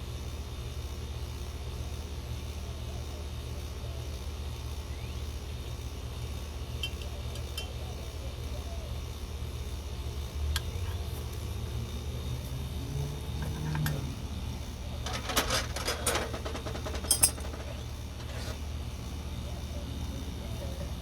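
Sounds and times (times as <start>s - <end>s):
steady low hum: 3.5s - 21.0s
small metal hardware clinking: 6.8s - 7.8s, 13.3s - 14.1s, 14.9s - 18.6s.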